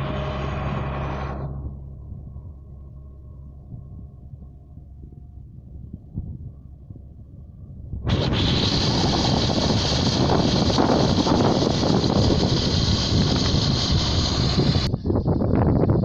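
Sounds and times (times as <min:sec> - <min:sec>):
combine harvester running: 0:00.0 - 0:03.3, 0:08.1 - 0:14.9.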